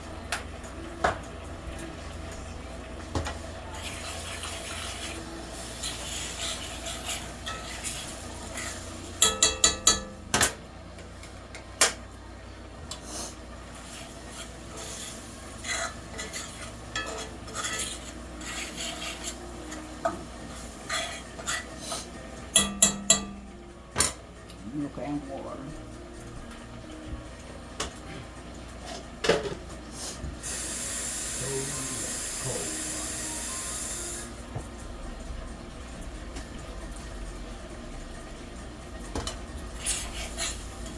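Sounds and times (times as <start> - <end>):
metal utensil scraping pan: 3.9 - 10.0, 14.0 - 23.4, 39.8 - 40.8
utensil clinking against pan: 7.1 - 10.6, 22.5 - 23.5.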